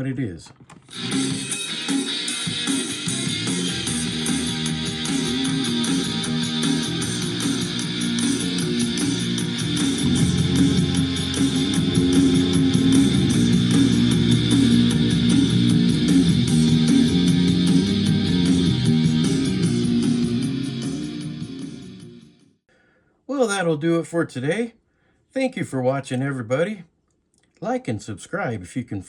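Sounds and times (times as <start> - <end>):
guitar rock music from cassette: 0.4 - 22.3.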